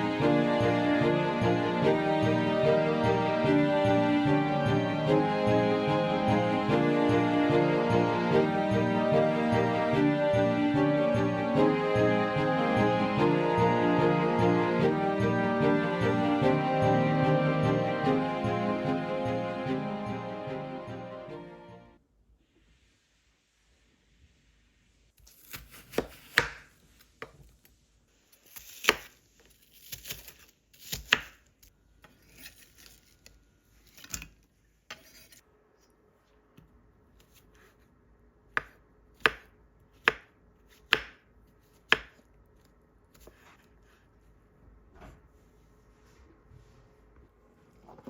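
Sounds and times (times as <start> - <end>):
knife chopping on cutting board: 25.4 - 27.4, 38.5 - 42.2, 43.1 - 43.6.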